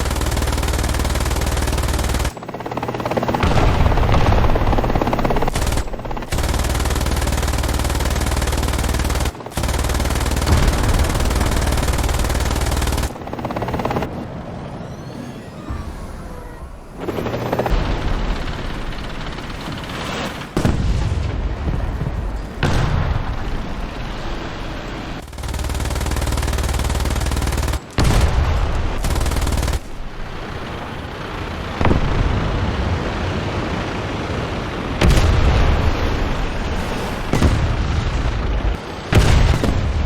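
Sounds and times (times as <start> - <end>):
machine-gun fire: 0.0 - 14.1, 22.6 - 32.4, 34.7 - 40.0
helicopter noise: 0.0 - 20.6, 29.0 - 39.1.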